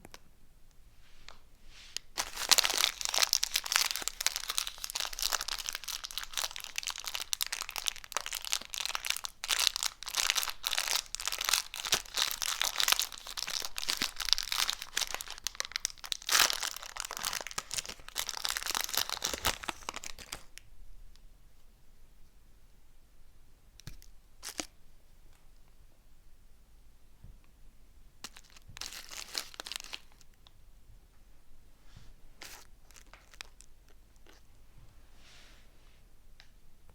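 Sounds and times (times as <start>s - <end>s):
plastic wrappers crinkling: 2.0s - 20.6s, 28.2s - 30.3s, 32.4s - 34.5s.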